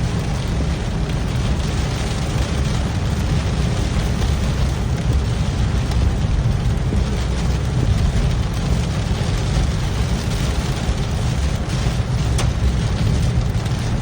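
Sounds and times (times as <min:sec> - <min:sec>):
car road and engine rumble: 0:00.0 - 0:14.0
heavy rain on a car: 0:00.0 - 0:14.0.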